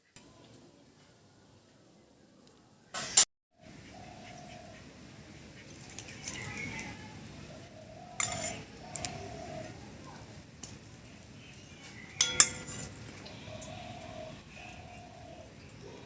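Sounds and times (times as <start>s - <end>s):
metal utensils and dishes clinking: 8.2s - 9.1s, 12.1s - 13.3s.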